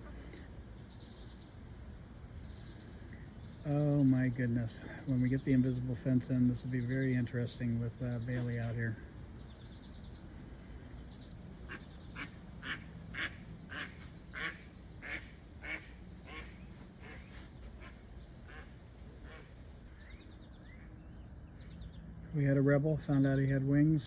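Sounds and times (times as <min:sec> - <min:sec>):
duck quacking: 0:11.7 - 0:19.5.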